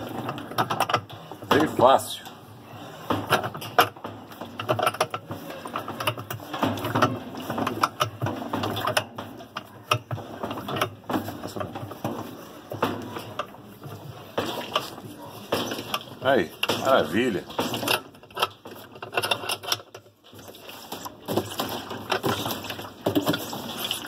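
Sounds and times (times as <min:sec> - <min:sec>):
metallic clicking and rattling: 0:00.0 - 0:02.5, 0:03.1 - 0:24.0.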